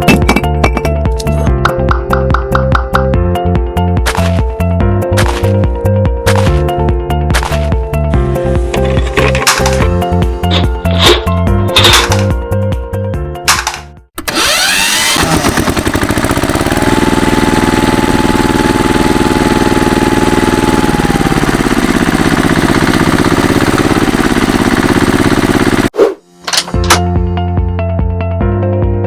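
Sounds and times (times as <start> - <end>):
small engine chugging: 14.2 - 25.9.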